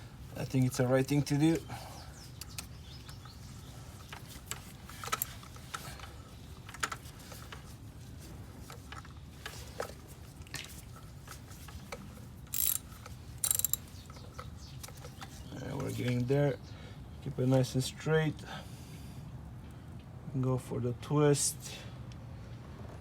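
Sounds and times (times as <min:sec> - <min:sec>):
hand tools clicking and knocking: 0:04.1 - 0:06.1, 0:11.9 - 0:15.9
short rasping bursts: 0:12.6 - 0:13.8.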